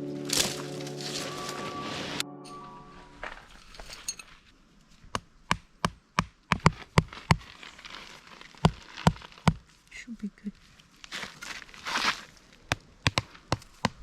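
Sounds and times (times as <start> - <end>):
axe chopping wood: 5.1 - 7.4, 12.7 - 14.0.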